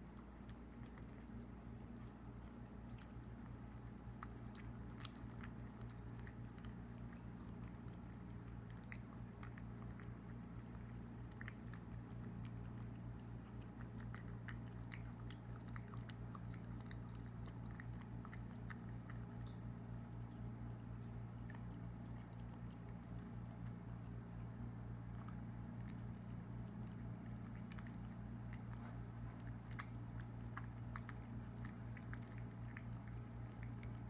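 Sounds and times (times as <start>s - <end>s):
kitten chewing and lapping: 0.0s - 34.0s
low steady hum: 0.0s - 34.0s.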